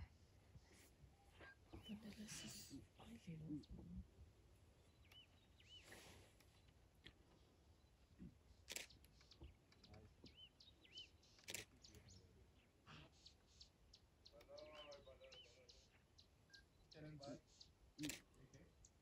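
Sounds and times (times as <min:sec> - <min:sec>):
faint bird chirps: 0:00.0 - 0:04.1, 0:04.8 - 0:06.8, 0:07.4 - 0:19.0
soft clicks: 0:05.0 - 0:05.4, 0:08.7 - 0:10.4.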